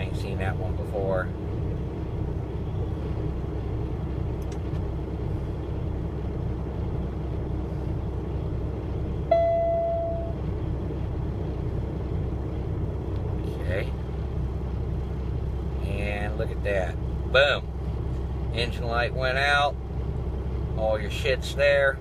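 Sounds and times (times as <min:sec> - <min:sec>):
diesel truck engine idling: 0:00.0 - 0:22.0
chime ringing: 0:09.3 - 0:10.4.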